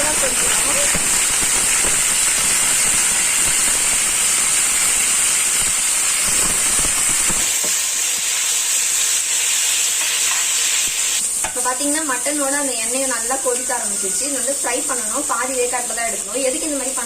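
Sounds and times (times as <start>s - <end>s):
low crackle: 0.0s - 7.6s
meat sizzling in hot oil: 0.0s - 17.0s.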